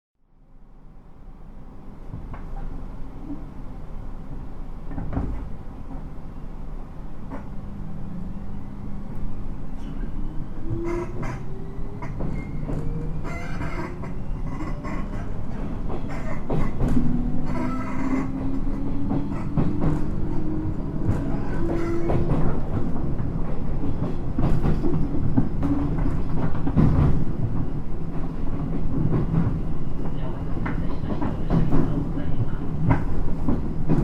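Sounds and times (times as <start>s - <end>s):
train wheel clatter: 4.9s - 6.1s, 10.6s - 34.0s.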